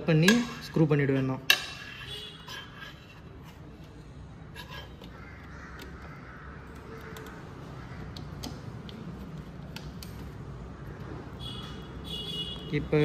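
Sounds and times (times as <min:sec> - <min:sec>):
birds calling: 0:04.6 - 0:09.5.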